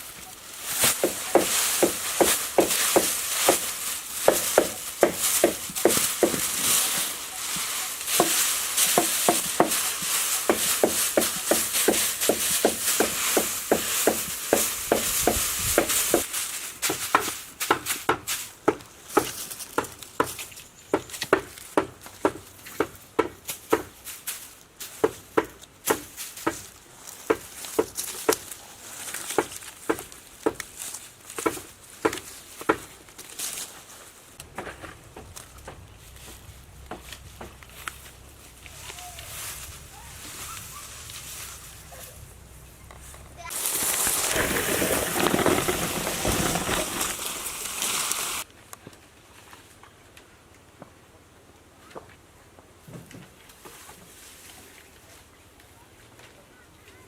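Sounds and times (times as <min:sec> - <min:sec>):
steady hiss: 0:00.0 - 0:19.6, 0:45.9 - 0:48.5.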